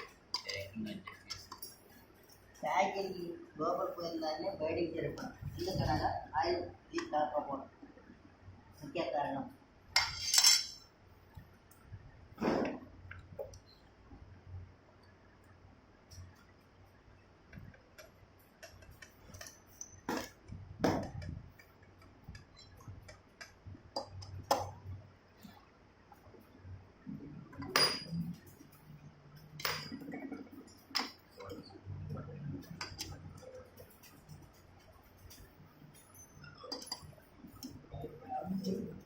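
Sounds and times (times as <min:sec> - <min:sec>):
metal tools clinking: 0:10.0 - 0:10.9, 0:33.5 - 0:37.7.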